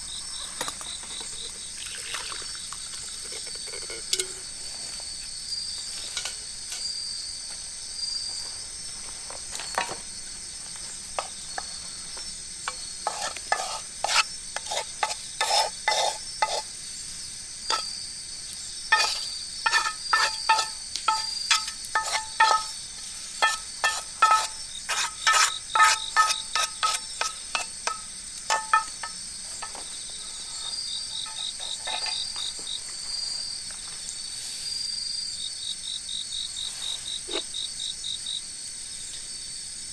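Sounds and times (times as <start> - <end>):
insects chirping: 0.0 - 39.9
metal utensil clinking in pot: 3.2 - 4.4, 18.9 - 22.8, 23.4 - 29.8, 31.2 - 32.3.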